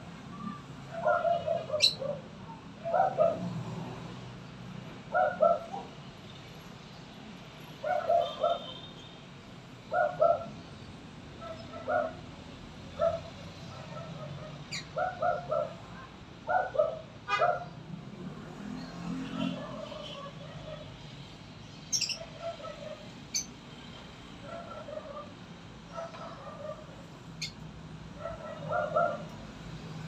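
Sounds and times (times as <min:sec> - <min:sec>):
bird calling: 0:00.3 - 0:02.2.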